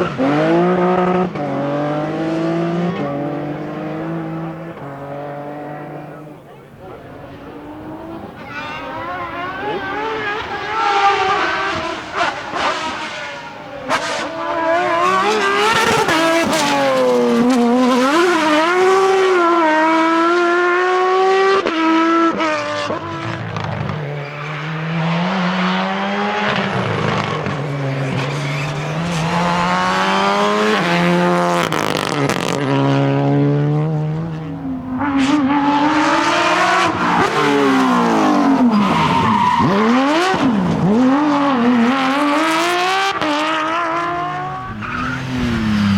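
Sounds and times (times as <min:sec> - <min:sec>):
car sweeping past: 0:00.0 - 0:45.9
rally car engines revving: 0:00.0 - 0:45.9
tyre squeal: 0:23.0 - 0:31.1, 0:36.8 - 0:40.6, 0:44.3 - 0:45.9.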